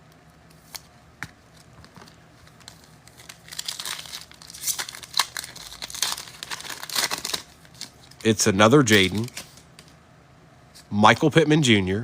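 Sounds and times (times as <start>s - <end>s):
foil wrapper crinkling: 2.0s - 9.8s.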